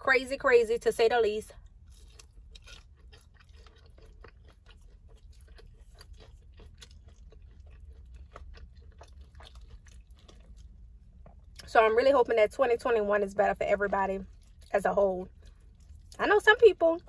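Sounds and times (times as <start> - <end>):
low steady hum: 0.0 - 17.0
person chewing with wet smacking: 1.6 - 11.8, 13.8 - 16.4.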